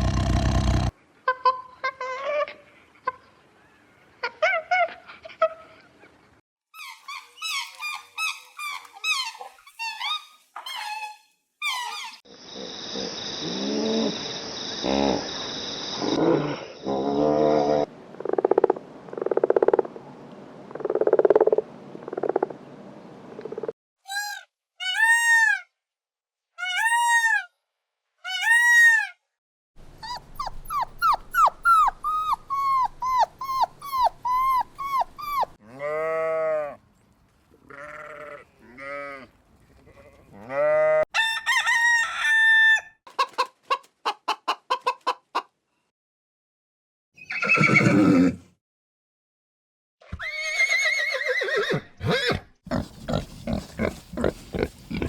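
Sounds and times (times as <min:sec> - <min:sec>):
pulsing animal calls: 0:30.0 - 0:35.6
short arching chirps: 0:30.0 - 0:35.6
animal cries: 0:30.0 - 0:36.7.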